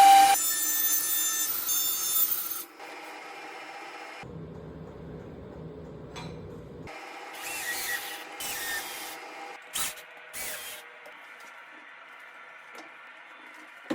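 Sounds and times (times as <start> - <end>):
low hum: 4.3 - 6.9.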